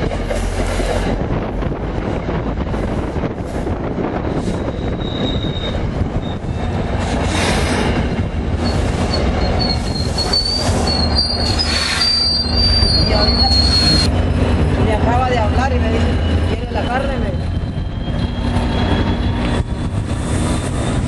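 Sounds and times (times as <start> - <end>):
train coaches rolling: 0.0 - 21.0
brakes squealing: 8.6 - 14.1.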